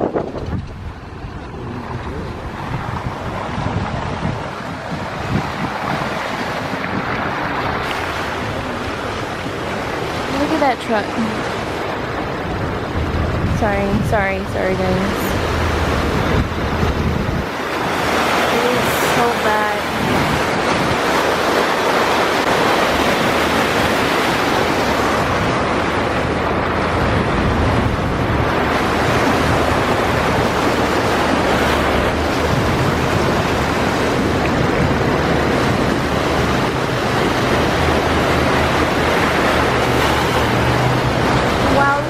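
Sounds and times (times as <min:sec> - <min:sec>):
heavy rain and floodwater rushing: 0:00.0 - 0:42.0
low hum: 0:24.4 - 0:42.0.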